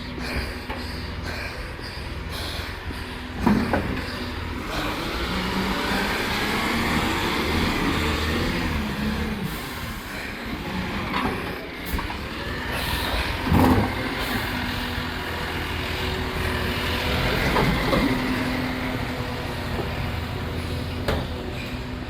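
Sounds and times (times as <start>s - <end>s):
diesel engine running: 0.0s - 22.0s
steady hum: 0.0s - 22.0s.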